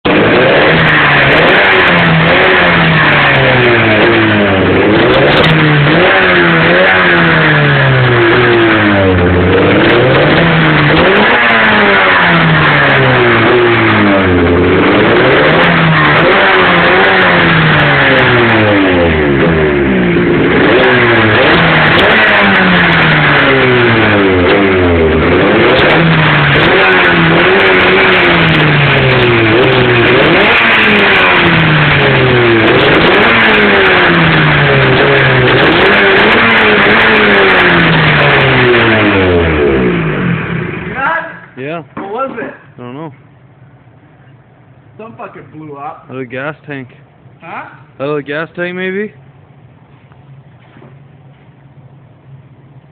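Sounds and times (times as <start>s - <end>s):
snowmobile engine revving: 0.1s - 41.8s.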